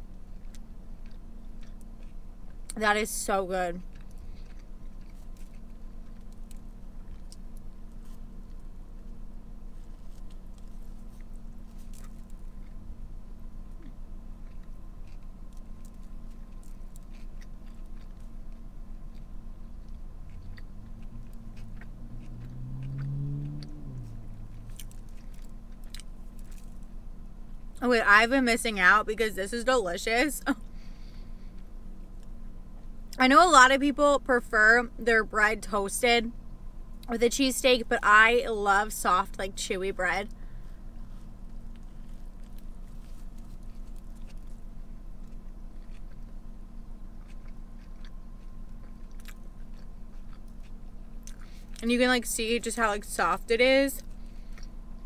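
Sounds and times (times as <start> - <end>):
closed-mouth hum: 0.0 - 55.0
person chewing food: 0.1 - 2.8, 3.8 - 26.9, 40.5 - 51.8, 54.0 - 55.0.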